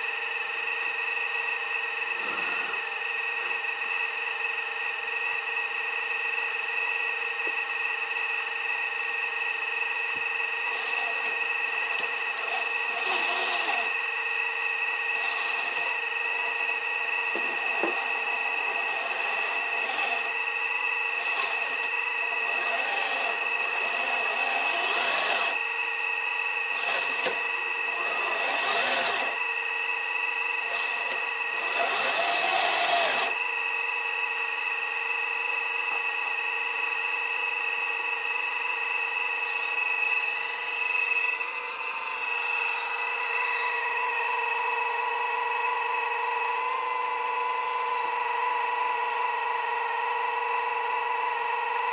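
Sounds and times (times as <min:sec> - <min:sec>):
excavator machine whine: 0:00.0 - 0:51.9
excavator working noise: 0:02.0 - 0:03.7, 0:10.1 - 0:25.7, 0:26.6 - 0:29.6, 0:30.6 - 0:33.4.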